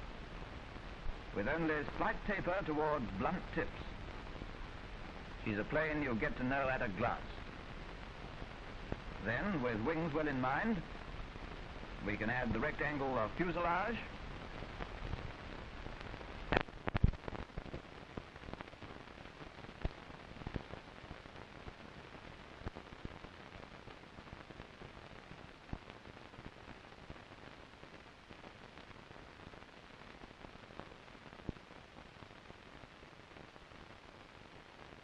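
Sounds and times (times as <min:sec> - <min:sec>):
film soundtrack hiss and crackle: 0:00.0 - 0:35.0
sharp clicks and pops: 0:14.4 - 0:19.0.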